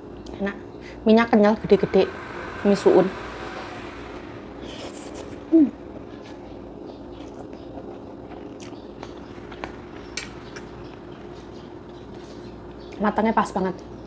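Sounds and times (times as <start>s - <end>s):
faint steady hum: 0.0s - 14.0s
quiet chewing: 7.0s - 13.0s.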